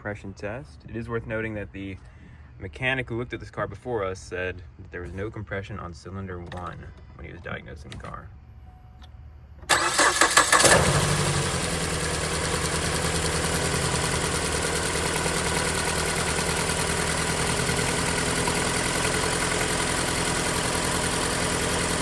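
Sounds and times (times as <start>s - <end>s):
car engine idling: 9.7s - 22.0s.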